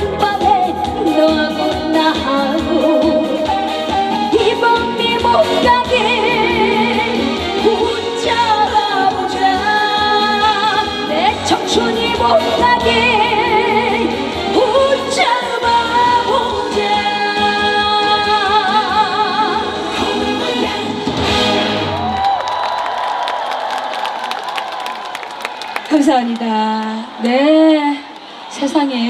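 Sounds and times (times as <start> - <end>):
live band playing trot song: 0.0 - 16.9.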